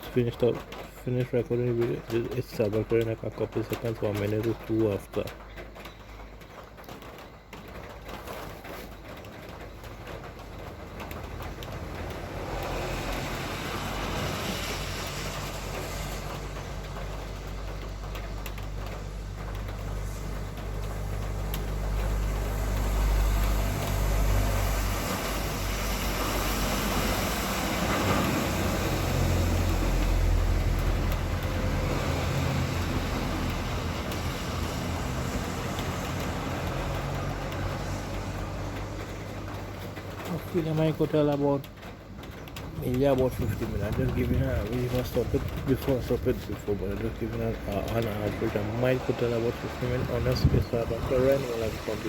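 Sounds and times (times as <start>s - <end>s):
vehicle traffic: 0.0s - 52.0s.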